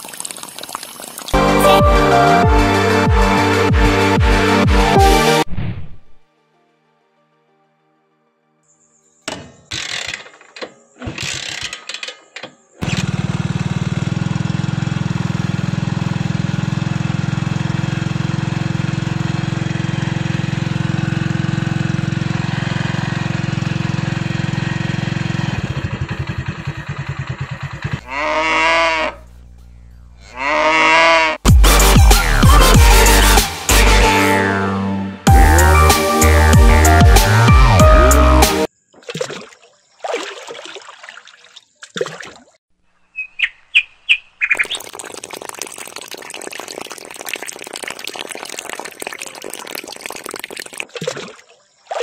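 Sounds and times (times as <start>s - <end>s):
motorcycle engine starting and idling: 9.6s - 28.2s
cow mooing: 28.0s - 29.2s, 30.2s - 31.4s.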